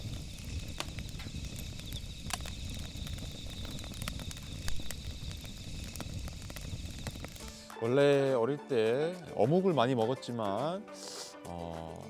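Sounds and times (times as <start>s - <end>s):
sharp pops: 0.0s - 7.8s
campfire crackling: 0.0s - 12.0s.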